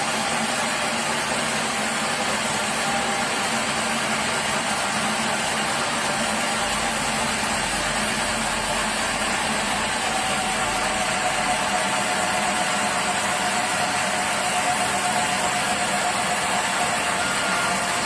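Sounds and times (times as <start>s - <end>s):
sawmill machinery drone: 0.0s - 18.0s
thin whine: 6.1s - 18.0s.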